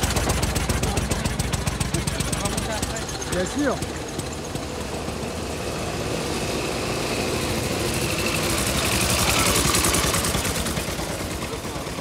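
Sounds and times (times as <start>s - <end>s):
old car engine chugging: 0.0s - 12.0s.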